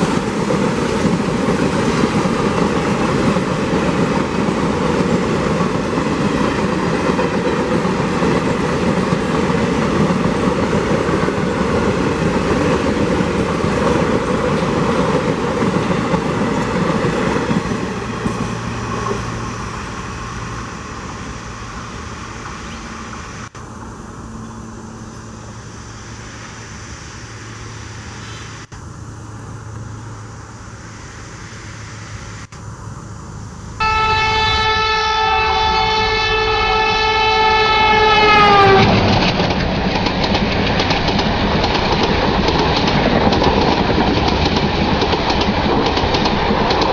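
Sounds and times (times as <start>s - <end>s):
train rolling past: 0.0s - 46.9s
diesel locomotive horn: 33.8s - 39.2s.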